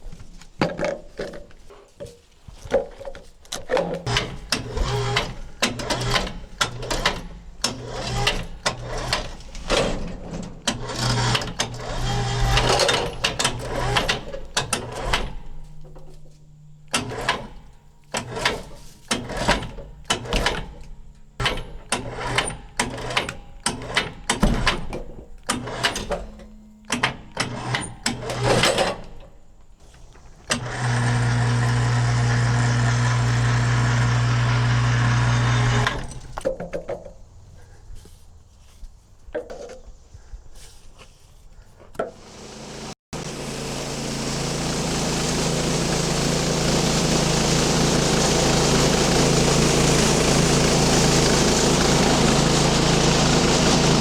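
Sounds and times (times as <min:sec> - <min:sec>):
loud engine running: 0:30.7 - 0:36.0, 0:42.3 - 0:54.0.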